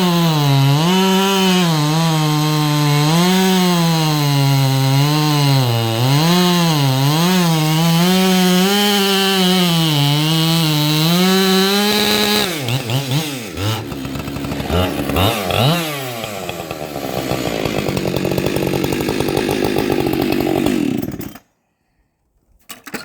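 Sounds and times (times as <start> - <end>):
chainsaw cutting log: 0.0 - 21.5.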